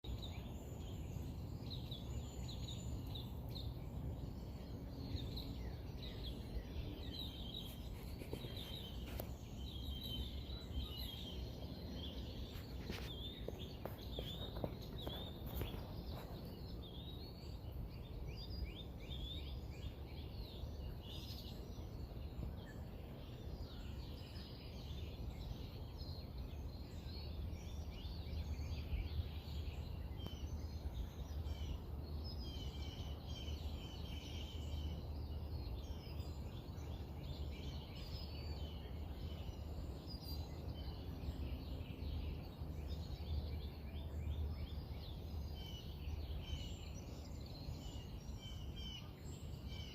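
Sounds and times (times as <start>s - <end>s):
songbirds chirping and trilling: 0.0s - 49.9s.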